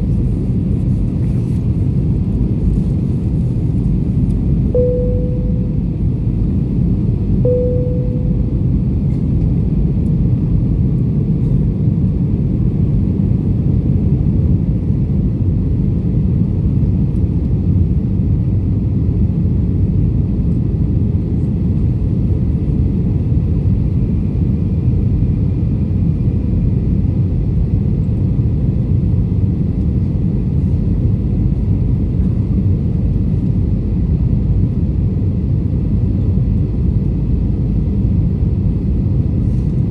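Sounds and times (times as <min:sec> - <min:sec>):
brief single tone: 0:04.8 - 0:06.2, 0:07.4 - 0:09.0.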